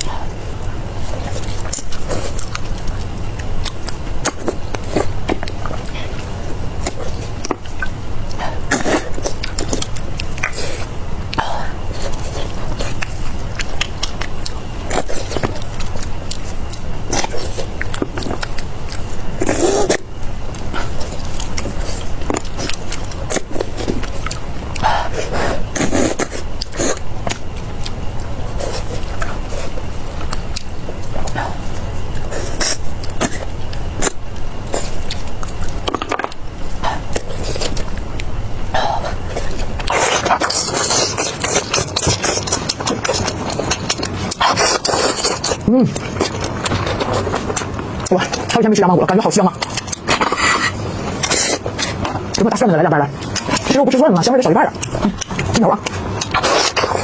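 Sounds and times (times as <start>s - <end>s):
person chewing and lip-smacking: 0.0s - 48.7s, 49.4s - 57.0s
low steady hum: 0.0s - 57.0s.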